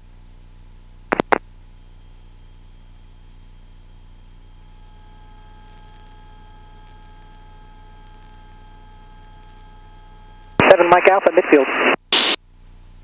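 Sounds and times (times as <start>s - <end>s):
higher-pitched whine: 1.1s - 10.9s
electrical whine tones: 1.1s - 12.4s.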